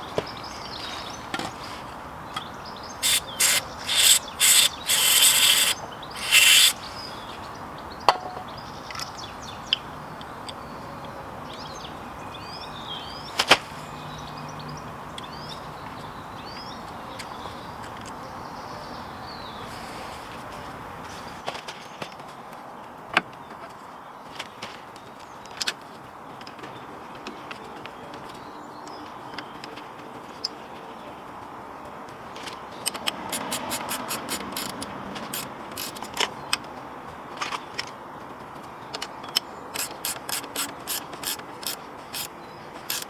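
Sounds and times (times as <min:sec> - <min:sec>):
birds chirping faintly: 0:02.3 - 0:07.4
sharp clicks: 0:03.0 - 0:06.8, 0:39.8 - 0:42.3
short hissing bursts: 0:03.0 - 0:07.2, 0:33.3 - 0:36.0, 0:39.8 - 0:42.3.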